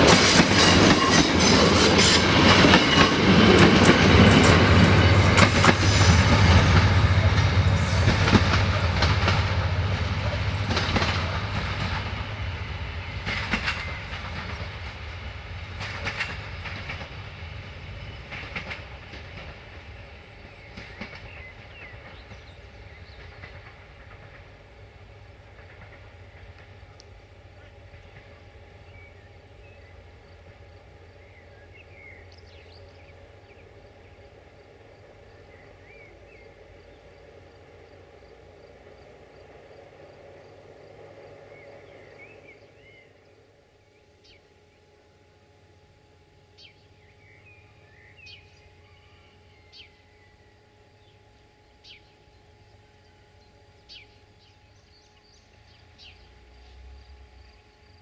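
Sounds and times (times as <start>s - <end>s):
train wheels clicking over rail joints: 0.0s - 29.2s
diesel train engine rumble: 0.0s - 58.0s.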